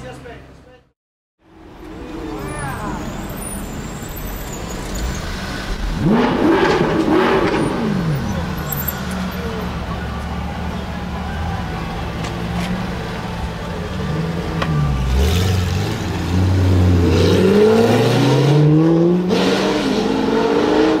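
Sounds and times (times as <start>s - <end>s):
car engine revving: 3.1s - 10.0s, 11.2s - 21.0s.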